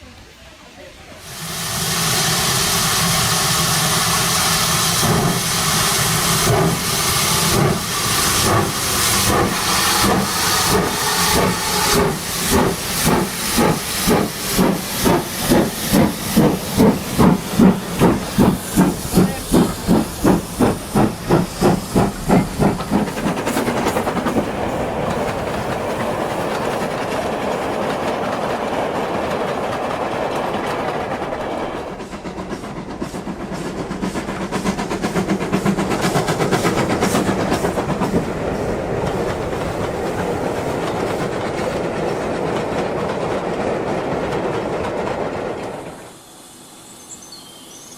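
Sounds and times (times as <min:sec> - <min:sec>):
steam locomotive chuffing: 0:00.3 - 0:47.9
train running rumble: 0:00.6 - 0:47.2.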